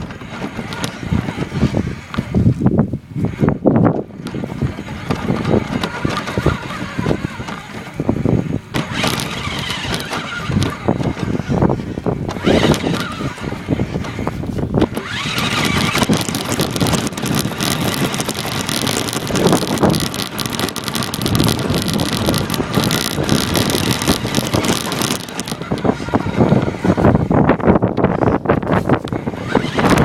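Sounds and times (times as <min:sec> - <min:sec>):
electric motor whine: 0:00.0 - 0:30.0
toy car rattling and wheel noise: 0:00.0 - 0:30.0.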